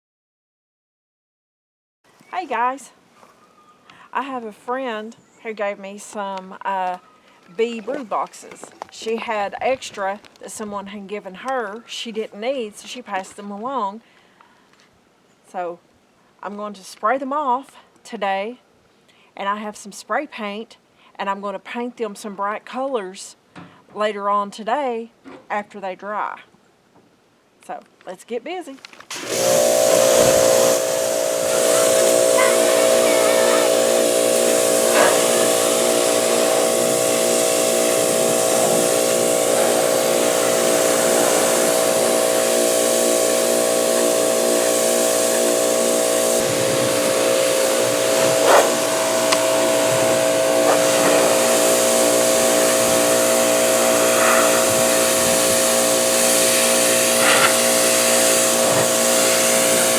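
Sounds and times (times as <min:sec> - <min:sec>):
pressure washer motor hum: 0:29.1 - 0:59.9
water jet spraying on wood: 0:29.1 - 0:59.9.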